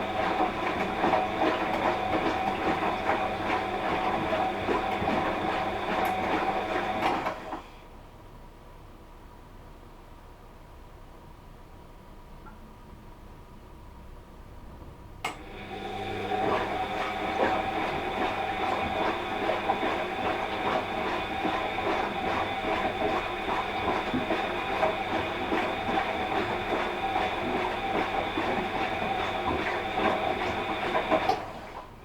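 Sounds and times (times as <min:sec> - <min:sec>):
washing machine running: 0:00.0 - 0:07.9, 0:14.6 - 0:32.0.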